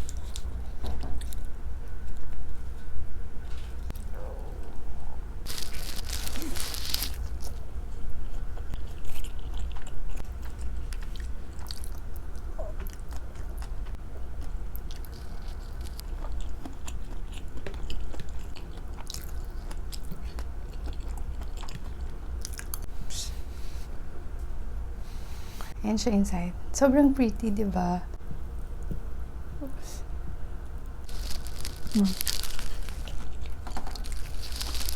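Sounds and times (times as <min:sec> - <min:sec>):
loud crunch of food: 0:05.5 - 0:07.6, 0:14.8 - 0:20.2, 0:31.1 - 0:34.9
chewing with wet mouth clicks: 0:08.6 - 0:22.9.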